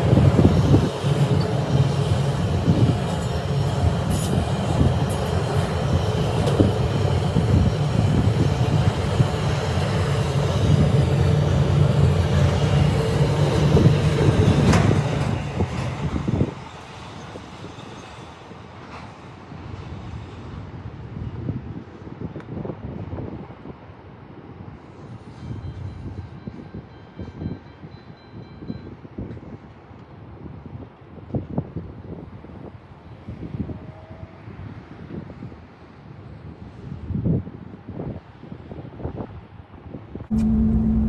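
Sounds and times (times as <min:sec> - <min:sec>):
train wheels rumbling on rail: 0:00.0 - 0:20.1, 0:40.3 - 0:41.0
clicks of train wheels: 0:00.8 - 0:07.6, 0:12.4 - 0:18.1.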